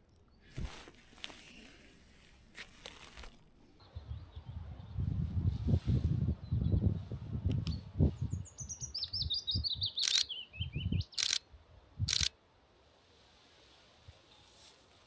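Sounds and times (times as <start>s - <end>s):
wind rumble on microphone: 3.8s - 10.0s, 10.6s - 12.2s
warbler singing: 7.7s - 11.4s.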